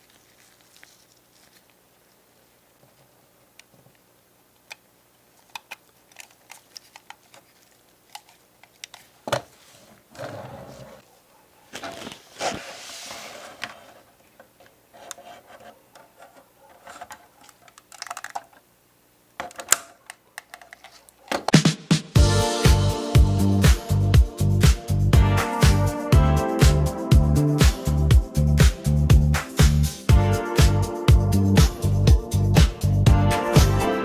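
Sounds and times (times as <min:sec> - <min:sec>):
scraping or rustling: 0:11.7 - 0:14.2.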